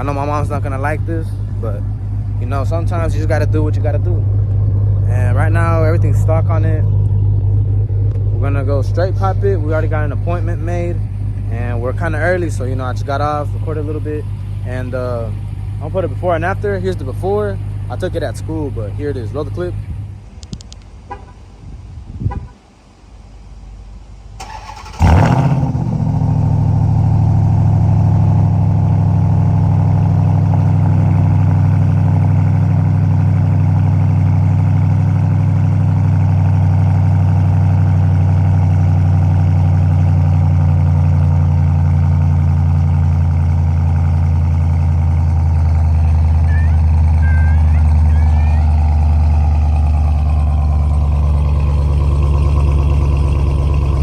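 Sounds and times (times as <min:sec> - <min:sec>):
engine starting and idling: 0:24.3 - 0:54.0.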